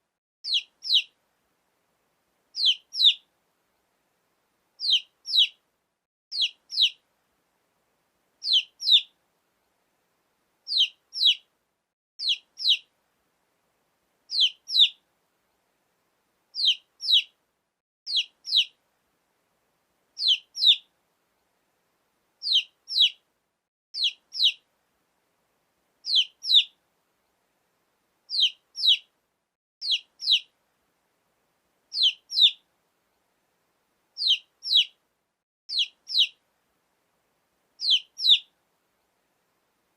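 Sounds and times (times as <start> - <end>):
chicks peeping: 0.5 - 1.1, 2.6 - 3.2, 4.8 - 5.6, 6.3 - 7.0, 8.4 - 9.1, 10.7 - 11.4, 12.2 - 12.8, 14.3 - 15.0, 16.6 - 17.3, 18.1 - 18.7, 20.2 - 20.8, 22.4 - 23.2, 24.0 - 24.6, 26.1 - 26.7, 28.3 - 29.1, 29.8 - 30.5, 32.0 - 32.6, 34.2 - 34.9, 35.7 - 36.4, 37.8 - 38.5.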